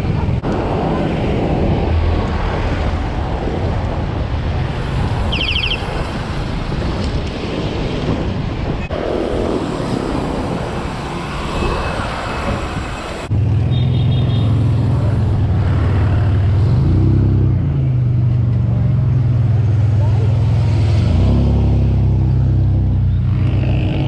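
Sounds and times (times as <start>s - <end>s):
wind rushing over microphone: 0.0s - 13.7s.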